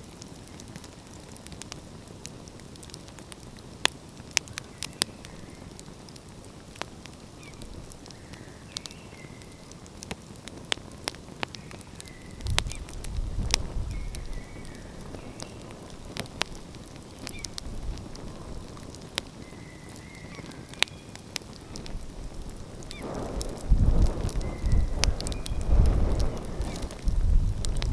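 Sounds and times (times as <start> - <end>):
wood fire crackling: 0.0 - 27.9
low rumble: 22.5 - 27.9.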